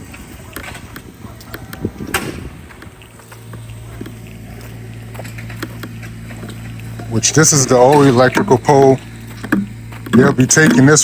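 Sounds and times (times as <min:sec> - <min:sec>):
wind on microphone: 0:00.0 - 0:03.2
footsteps outdoors: 0:00.0 - 0:11.0
low engine hum: 0:00.0 - 0:11.0
sharp crack: 0:00.6 - 0:03.4.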